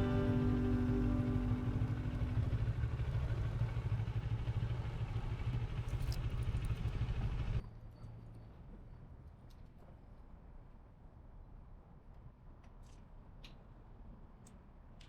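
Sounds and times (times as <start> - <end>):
guitar music: 0.0 - 2.7
motorcycle engine idling: 0.0 - 7.6.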